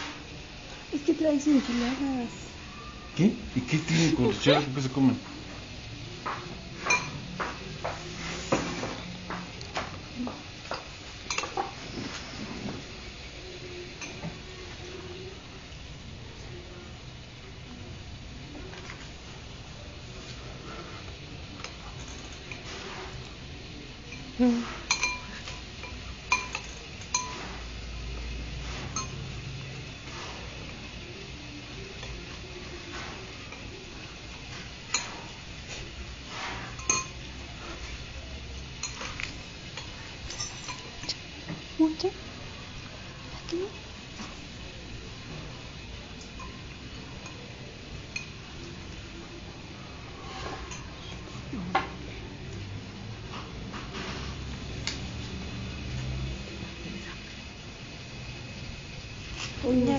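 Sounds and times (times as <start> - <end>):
cutlery clinking against dishes: 6.3 - 12.0, 14.0 - 14.4, 21.6 - 23.4, 24.0 - 27.8, 28.6 - 29.4, 34.4 - 35.8, 36.4 - 38.0, 38.7 - 41.6, 46.2 - 48.5, 50.2 - 51.2.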